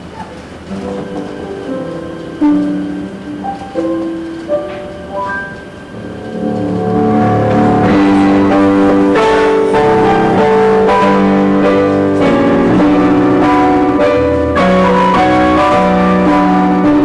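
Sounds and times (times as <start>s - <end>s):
keyboard and guitar chords: 5.4s - 17.0s.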